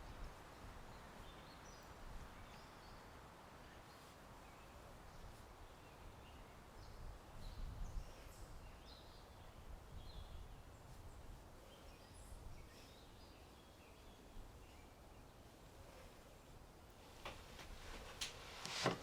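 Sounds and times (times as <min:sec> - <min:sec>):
bird chirps and tweets: 0:00.4 - 0:15.5.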